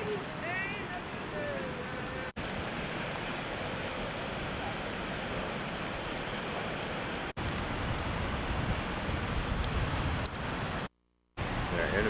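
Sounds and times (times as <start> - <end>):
ocean surf: 0.0 - 12.0
wind buffeting microphone: 7.4 - 12.0.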